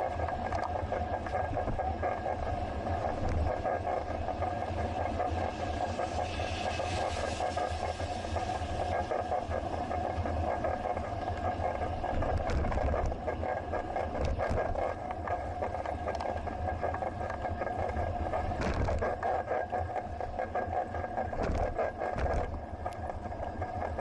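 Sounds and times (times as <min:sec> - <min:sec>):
bicycle riding rumble: 0:00.0 - 0:24.0
small clicks and rattles: 0:00.2 - 0:01.8, 0:12.1 - 0:20.1, 0:21.3 - 0:24.0.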